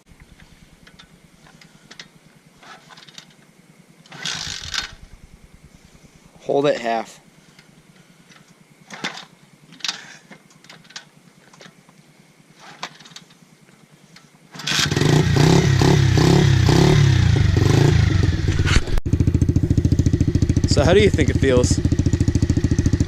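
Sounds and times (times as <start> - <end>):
pit bike engine revving: 4.1 - 6.1, 14.6 - 23.0.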